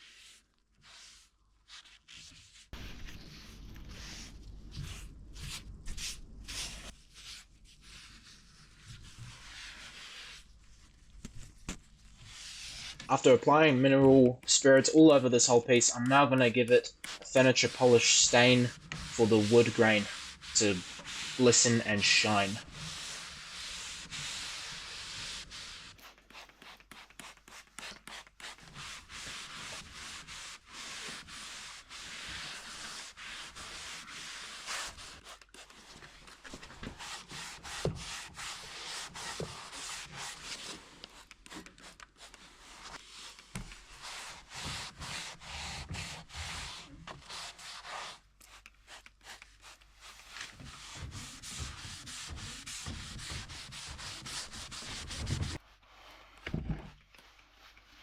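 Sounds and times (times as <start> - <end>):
cloth rubbing on wood: 0.0 - 15.6, 17.0 - 55.9.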